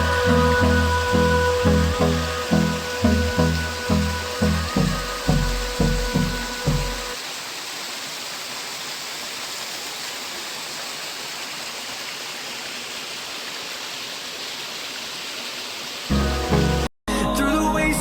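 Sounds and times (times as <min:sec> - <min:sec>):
background music: 0:00.0 - 0:07.2, 0:16.1 - 0:18.0
waterfall roaring: 0:00.0 - 0:16.9.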